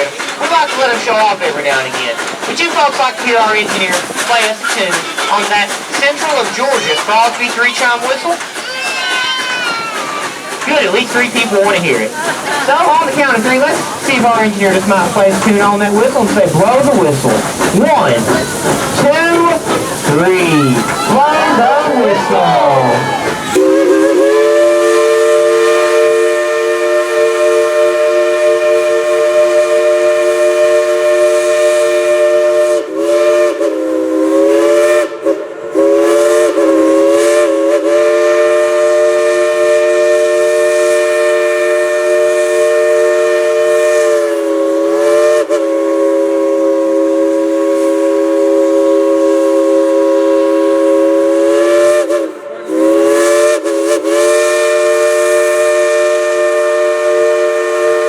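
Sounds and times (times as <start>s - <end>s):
hissing steam: 0.0s - 58.0s
steam whistle chord: 23.6s - 58.0s.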